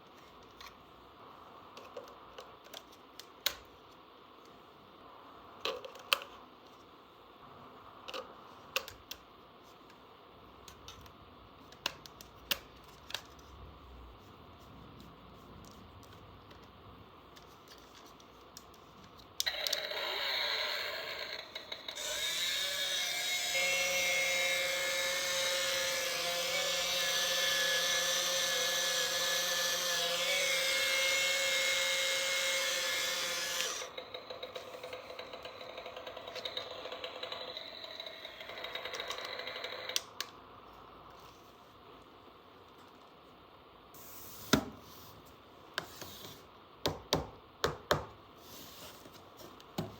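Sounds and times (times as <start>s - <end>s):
toy screwdriver motor whirring: 19.4s - 40.1s.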